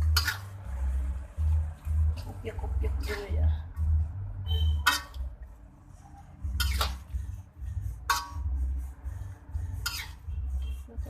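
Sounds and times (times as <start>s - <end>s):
utensil scraping pan: 0.0s - 0.6s, 4.5s - 5.3s, 6.4s - 9.0s, 9.6s - 10.9s
utensil stirring vegetables in sauce: 0.0s - 11.0s.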